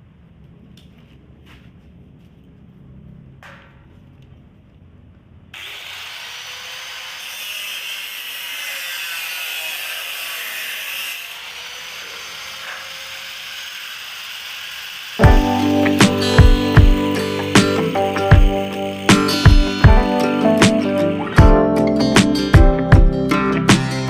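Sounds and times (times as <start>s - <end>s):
rotary tool saw grinding: 5.6s - 21.4s.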